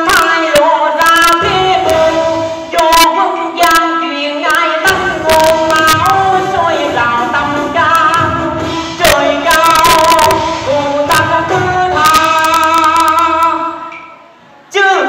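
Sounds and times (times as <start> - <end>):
woman singing: 0.0 - 14.0, 14.7 - 15.0
musical accompaniment: 1.1 - 14.7.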